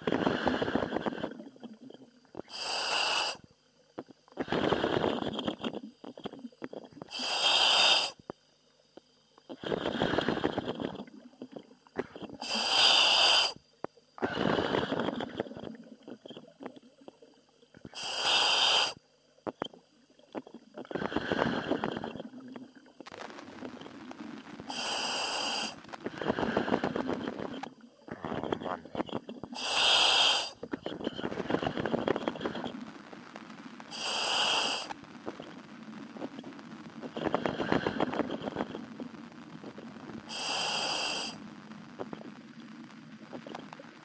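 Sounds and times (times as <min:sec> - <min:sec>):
hissing inhale through regulator: 0:00.0 - 0:01.5, 0:02.4 - 0:03.5, 0:04.4 - 0:08.2, 0:09.5 - 0:13.6, 0:14.2 - 0:16.3, 0:17.9 - 0:19.0, 0:20.8 - 0:22.5, 0:24.7 - 0:27.7, 0:29.4 - 0:32.7, 0:33.9 - 0:35.0, 0:37.2 - 0:38.8, 0:40.3 - 0:41.4
bubbling exhale: 0:00.0 - 0:03.4, 0:04.4 - 0:08.2, 0:09.5 - 0:13.6, 0:14.2 - 0:16.6, 0:20.4 - 0:22.9, 0:24.6 - 0:32.8, 0:33.9 - 0:35.0, 0:37.1 - 0:39.0, 0:40.3 - 0:41.4.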